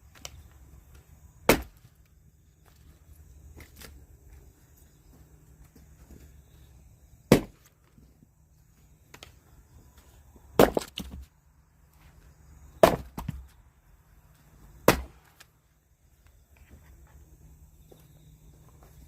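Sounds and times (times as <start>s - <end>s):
axe striking firewood: 1.4s - 1.9s, 7.2s - 7.9s, 10.5s - 11.3s, 12.7s - 13.5s, 14.8s - 15.5s.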